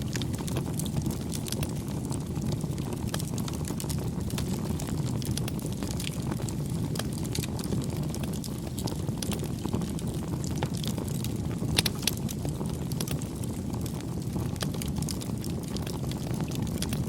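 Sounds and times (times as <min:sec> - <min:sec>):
campfire crackles and pops: 0:00.0 - 0:17.0
low rumble of flames: 0:00.0 - 0:17.0.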